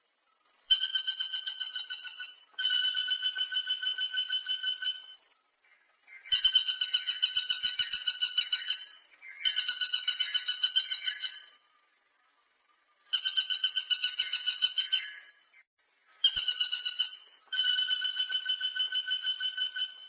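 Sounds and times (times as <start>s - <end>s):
woodpecker rattling: 0.7s - 5.3s, 6.2s - 11.6s, 13.1s - 15.4s, 16.2s - 20.0s.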